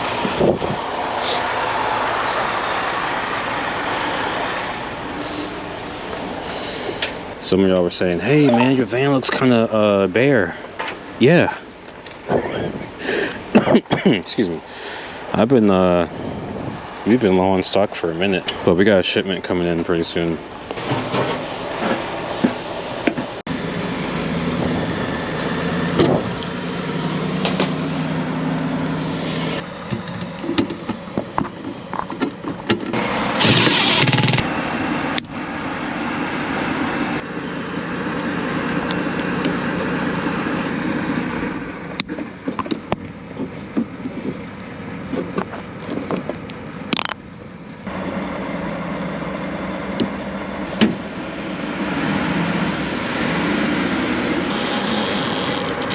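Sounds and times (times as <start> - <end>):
machinery humming: 54.4 - 55.9.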